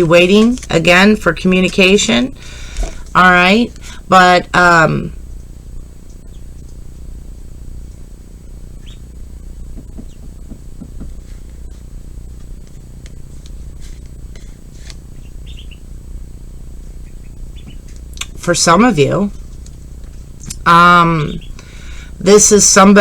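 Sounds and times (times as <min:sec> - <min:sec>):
steady low hum: 0:00.0 - 0:23.0
bird chirping: 0:08.7 - 0:09.2, 0:15.2 - 0:15.9, 0:17.0 - 0:17.9, 0:21.2 - 0:21.6.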